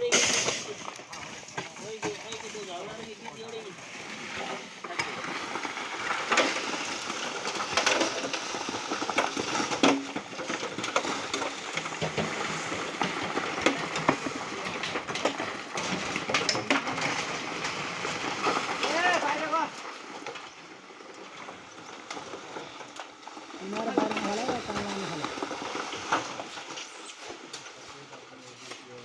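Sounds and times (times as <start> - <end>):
metal tools scraping concrete: 23.6 - 27.8.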